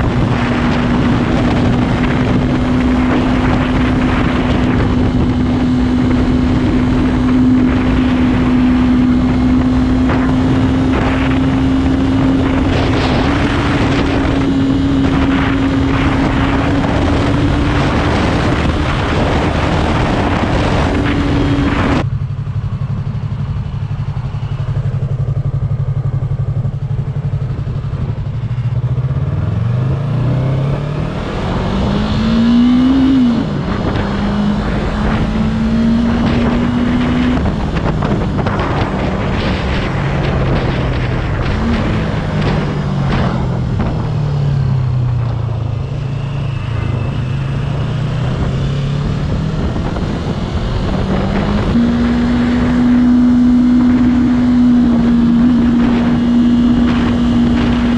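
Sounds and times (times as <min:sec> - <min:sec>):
motorcycle engine running: 0:00.0 - 0:57.9
wind rush: 0:00.0 - 0:57.9.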